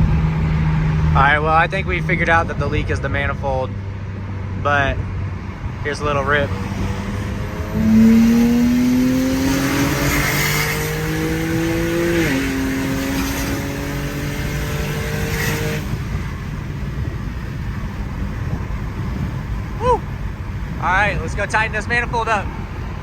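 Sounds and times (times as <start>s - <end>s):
car engine revving at full throttle: 0.0s - 21.1s.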